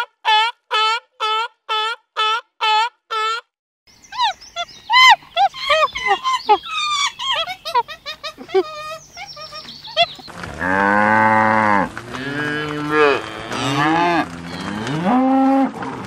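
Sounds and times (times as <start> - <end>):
cattle mooing: 10.4 - 16.0.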